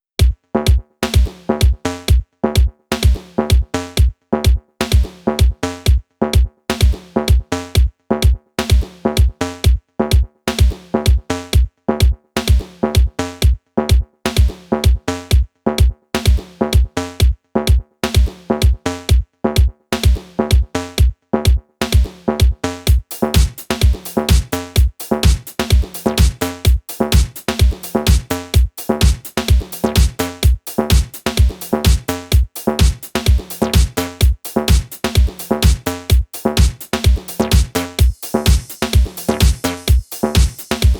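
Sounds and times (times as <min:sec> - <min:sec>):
electronic dance music: 0:22.9 - 0:40.9.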